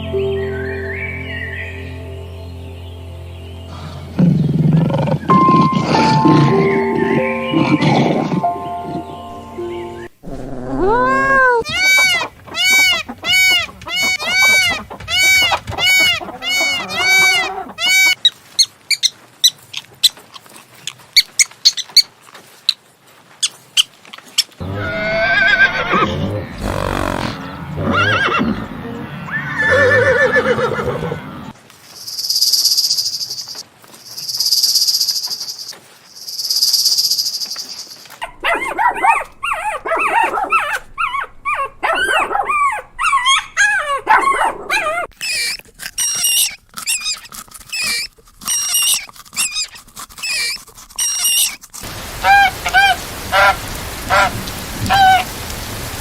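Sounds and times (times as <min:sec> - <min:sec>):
pitched animal calls: 0:03.8 - 0:09.2, 0:10.2 - 0:20.2, 0:23.4 - 0:31.6, 0:38.2 - 0:55.5
steady hiss: 0:51.8 - 0:56.0.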